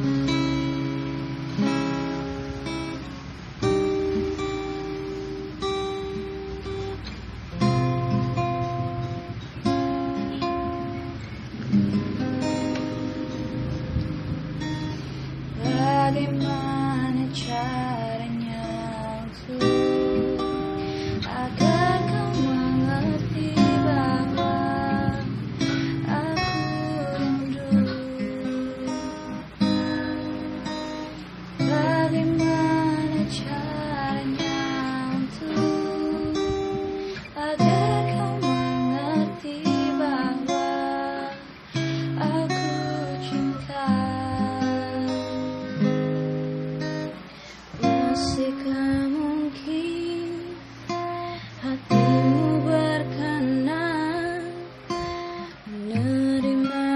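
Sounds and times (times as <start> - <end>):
acoustic guitar strumming: 0.0 - 56.9
person singing: 15.5 - 30.6, 31.6 - 46.0, 47.8 - 56.9.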